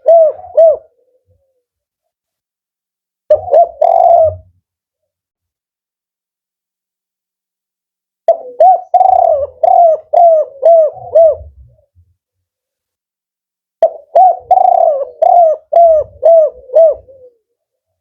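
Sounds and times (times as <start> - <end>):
dove cooing: 0.0 - 1.7, 3.3 - 4.6, 8.3 - 12.0, 13.8 - 17.6.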